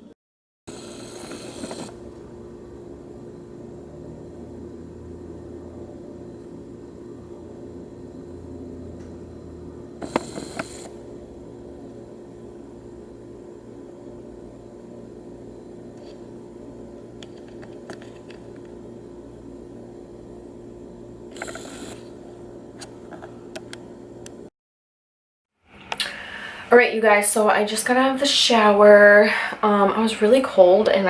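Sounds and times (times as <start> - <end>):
low hum: 1.7 - 22.8.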